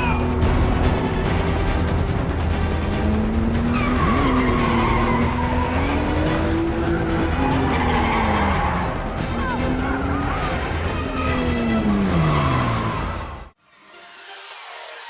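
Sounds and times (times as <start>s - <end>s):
car engines revving: 0.0s - 13.6s
film score music: 0.0s - 15.0s
tyres squealing: 2.8s - 13.2s.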